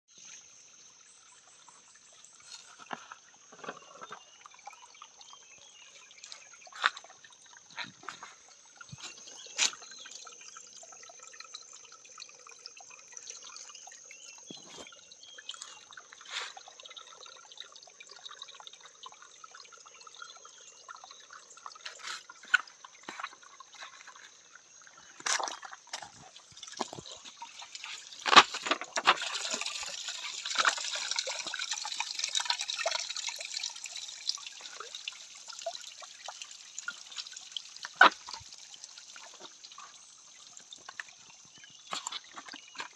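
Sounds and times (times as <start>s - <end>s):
water trickling and dripping: 0.1s - 42.9s
splashes and knocks: 21.7s - 24.4s, 25.0s - 31.7s, 36.9s - 38.6s, 40.7s - 42.9s.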